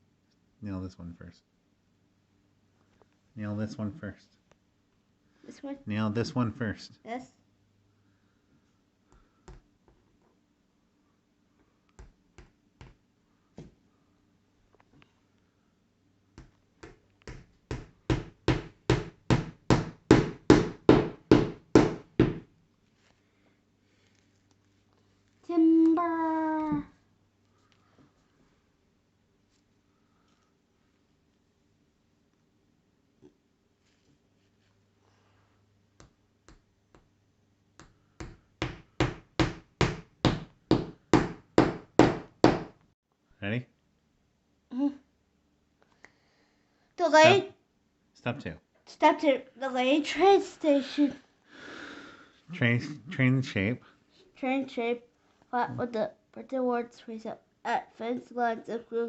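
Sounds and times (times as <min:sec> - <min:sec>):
hammer striking nail into wood: 0:16.8 - 0:22.4, 0:37.8 - 0:42.8.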